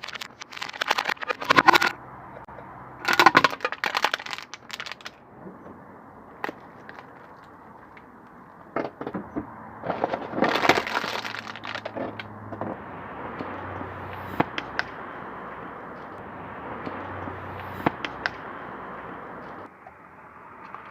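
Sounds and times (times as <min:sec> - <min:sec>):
tyre crushing brittle objects: 0:00.0 - 0:02.0, 0:03.0 - 0:05.2, 0:09.8 - 0:12.3
low car hum: 0:00.0 - 0:20.9.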